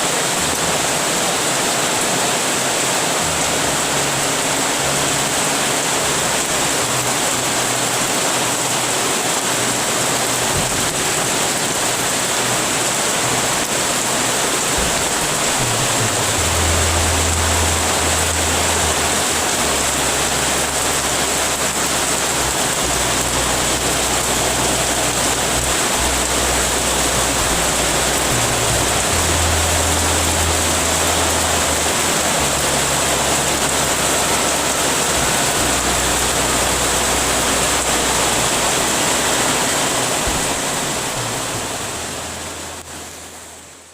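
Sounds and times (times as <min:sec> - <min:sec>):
heavy rain falling: 0:00.0 - 0:43.9
low hum: 0:13.2 - 0:43.7.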